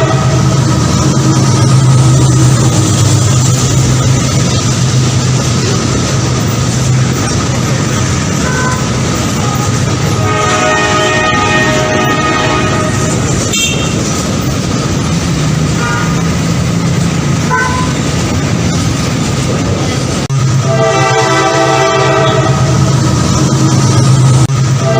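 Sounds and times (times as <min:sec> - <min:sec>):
train horn blast: 0:00.0 - 0:00.8, 0:08.4 - 0:14.2, 0:15.7 - 0:16.4, 0:17.5 - 0:18.0, 0:20.6 - 0:23.0, 0:24.6 - 0:24.9
train rumbling: 0:00.0 - 0:24.9.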